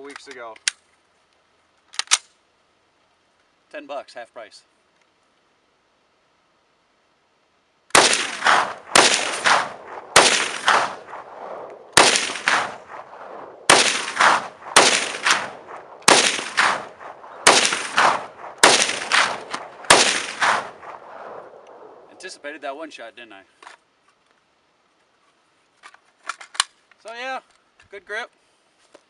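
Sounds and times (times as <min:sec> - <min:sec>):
rifle shots with echo: 0:07.9 - 0:22.2.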